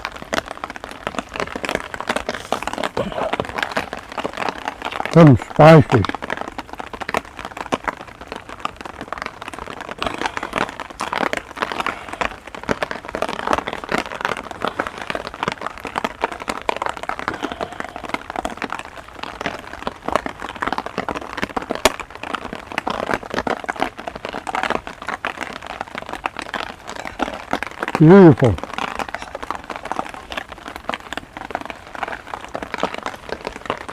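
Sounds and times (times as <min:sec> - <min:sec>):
heavy rain falling: 0:00.0 - 0:33.9.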